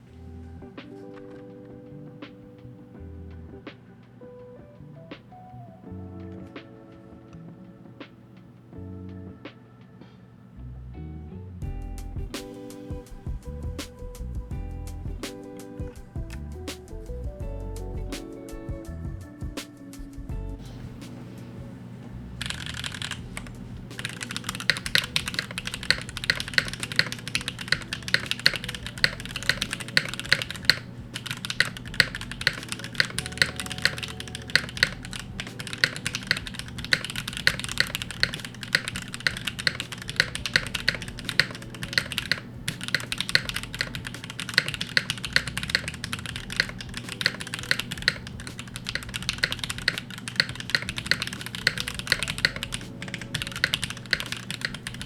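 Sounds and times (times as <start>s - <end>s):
fast typing on mechanical keyboard: 22.4s - 55.0s.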